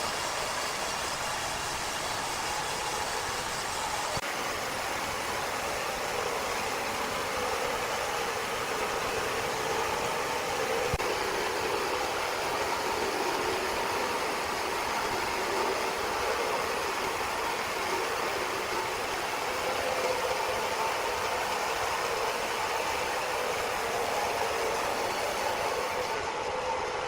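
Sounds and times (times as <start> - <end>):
machinery drone: 0.0 - 27.0.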